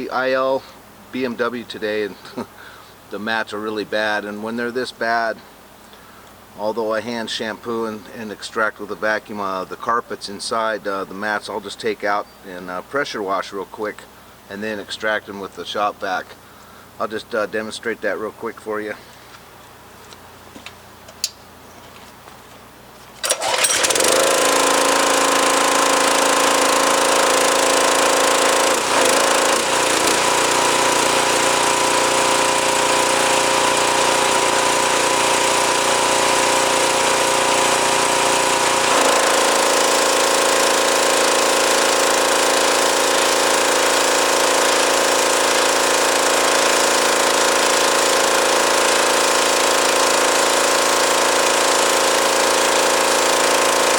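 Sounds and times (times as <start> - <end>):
pressure washer machine hum: 23.1 - 53.9.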